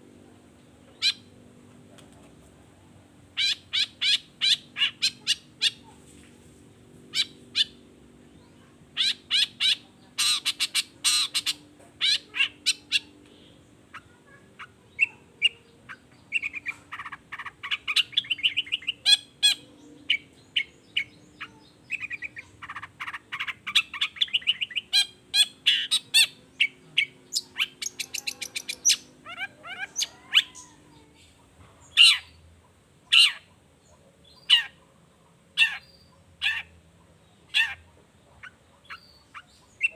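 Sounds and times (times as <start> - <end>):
chattering bird trills: 0.2 - 2.2, 3.1 - 6.2, 6.9 - 39.9.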